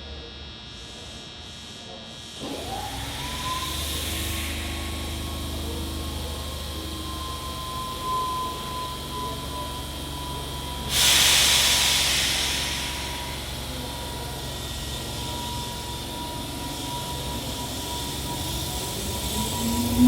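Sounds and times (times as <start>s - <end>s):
train humming: 3.9s - 20.0s
compressed air hiss: 10.9s - 14.0s.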